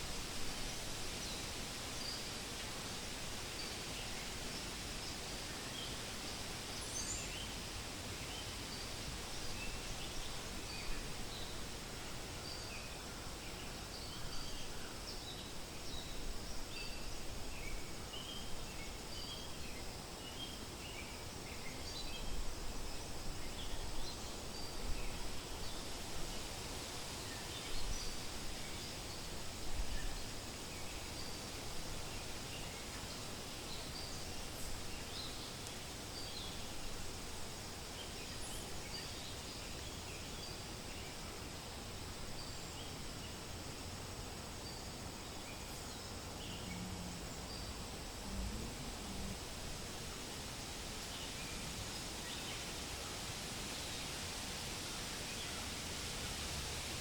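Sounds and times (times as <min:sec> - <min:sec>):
wind rustling: 0:00.0 - 0:57.0
low wind gusts: 0:15.5 - 0:57.0.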